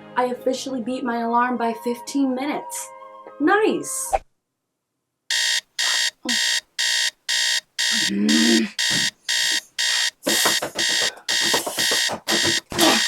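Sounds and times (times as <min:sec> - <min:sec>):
alarm clock beeping: 0:05.3 - 0:13.0.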